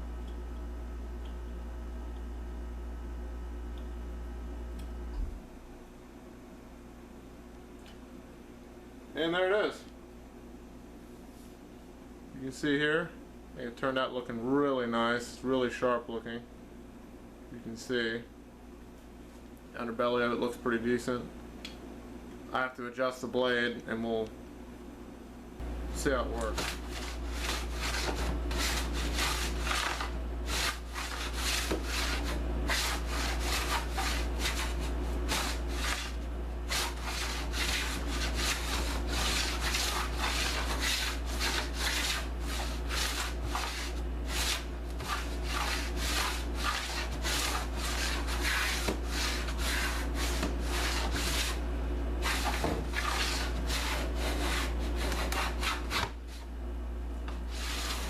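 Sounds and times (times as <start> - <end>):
steady low hum: 0.0 - 58.0
hand plane shaving a board: 26.5 - 51.6, 52.2 - 56.2, 57.5 - 58.0.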